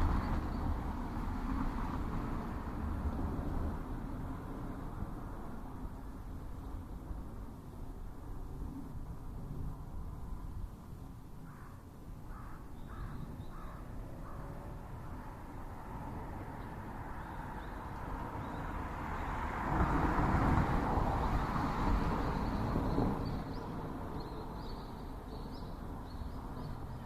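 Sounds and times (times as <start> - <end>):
crow cawing: 11.5 - 14.6.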